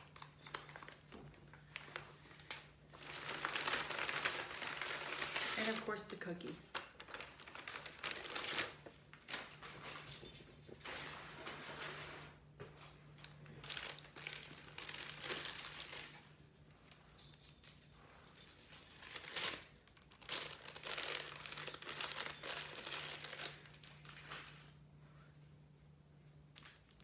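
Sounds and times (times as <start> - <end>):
paper packaging crinkling: 0.0 - 10.2, 13.1 - 16.3, 18.4 - 24.8, 26.5 - 27.0.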